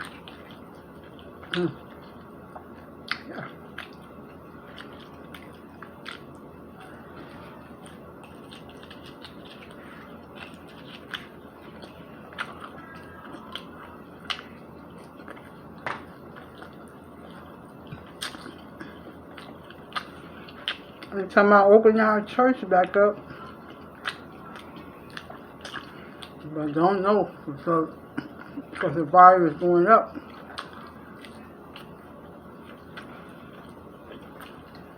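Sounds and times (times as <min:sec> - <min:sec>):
person chewing: 0:00.0 - 0:21.2, 0:23.2 - 0:26.5, 0:30.1 - 0:34.9
room hum: 0:00.0 - 0:34.9
mouth clicks and smacks: 0:02.5 - 0:04.0, 0:17.8 - 0:21.1.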